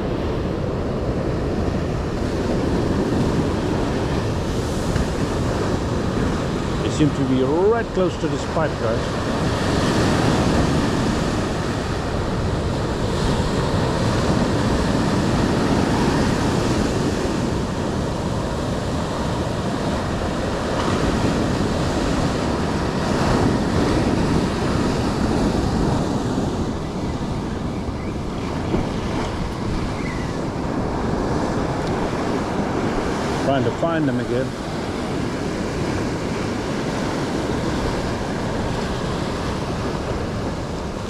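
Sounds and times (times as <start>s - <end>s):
ocean surf washing ashore: 0.0s - 41.0s
wind buffeting microphone: 0.0s - 41.0s.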